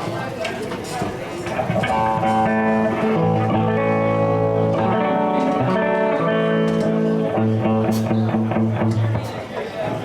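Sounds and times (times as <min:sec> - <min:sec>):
electric guitar: 0:01.5 - 0:09.5
blues band playing: 0:01.6 - 0:09.4.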